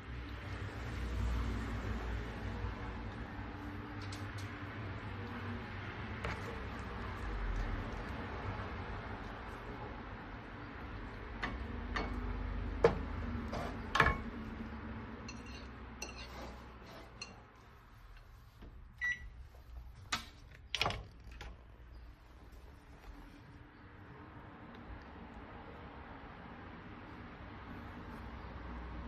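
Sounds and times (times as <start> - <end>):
dishes and utensils clinking: 15.2 - 17.6.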